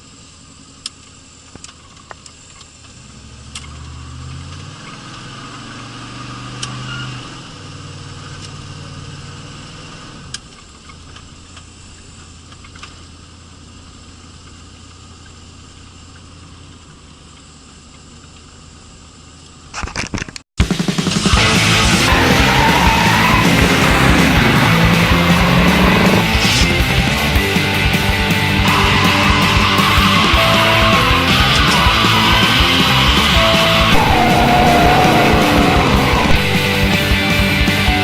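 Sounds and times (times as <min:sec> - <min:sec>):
car engine pulling away: 0:02.8 - 0:11.2, 0:21.0 - 0:38.0.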